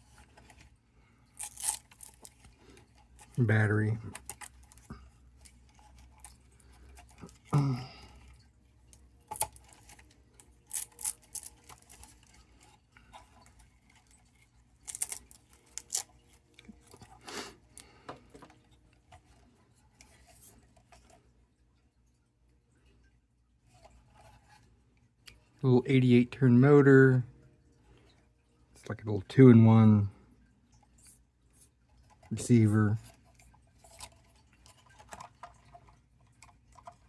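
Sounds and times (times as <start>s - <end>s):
plastic toy car clicks and rattles: 1.4s - 7.6s, 8.3s - 12.4s, 13.1s - 17.1s, 33.0s - 37.0s.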